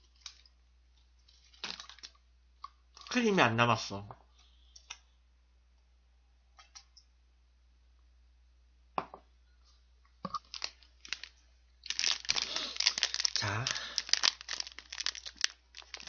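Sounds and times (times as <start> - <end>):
person chewing soft cake: 10.4 - 16.0.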